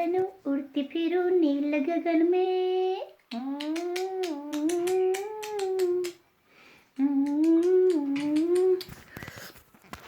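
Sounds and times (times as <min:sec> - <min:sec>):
woman humming: 0:03.3 - 0:06.2, 0:07.0 - 0:08.9.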